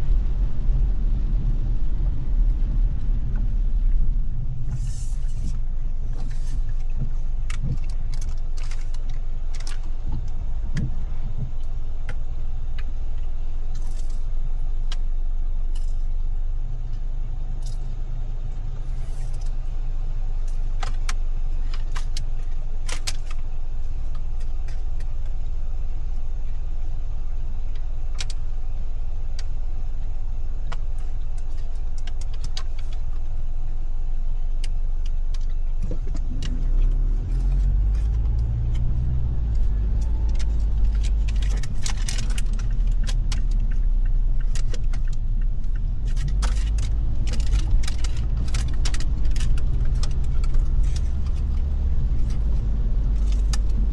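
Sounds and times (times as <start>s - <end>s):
engine and tyre rumble: 0.0s - 53.9s
raindrops ticking on car: 38.1s - 53.9s.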